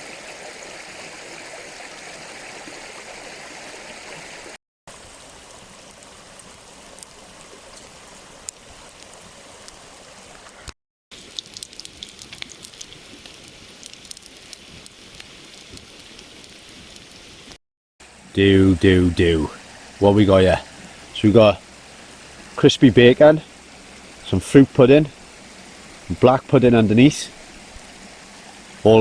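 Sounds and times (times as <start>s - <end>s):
stream running: 0.0s - 29.0s
bacon sizzling and spitting: 11.1s - 17.6s, 19.5s - 28.9s.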